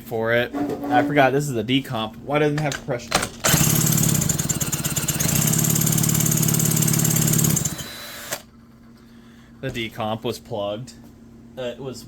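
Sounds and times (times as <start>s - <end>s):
chainsaw engine cranking: 3.4s - 8.4s.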